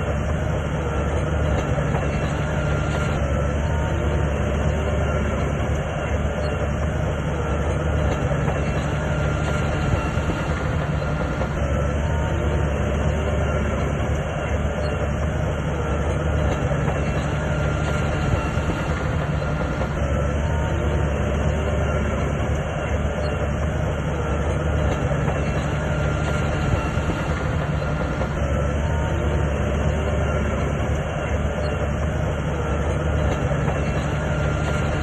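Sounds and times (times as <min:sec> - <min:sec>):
bulldozer diesel engine running: 0:00.0 - 0:35.0
steel tracks clattering: 0:00.0 - 0:35.0.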